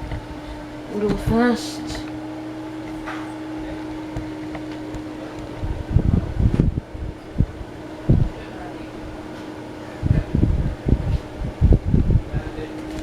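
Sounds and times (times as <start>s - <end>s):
ceiling fan running: 0.0s - 13.0s
wind buffeting microphone: 3.6s - 13.0s.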